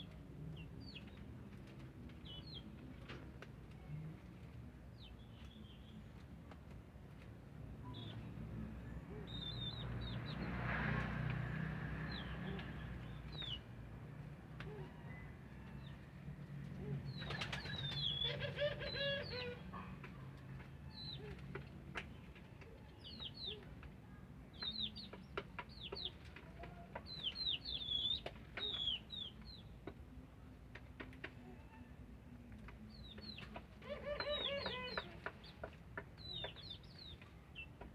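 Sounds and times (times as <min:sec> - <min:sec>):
dove wing flaps: 0:17.2 - 0:18.0
small birds chirping: 0:22.9 - 0:29.8, 0:32.9 - 0:37.9.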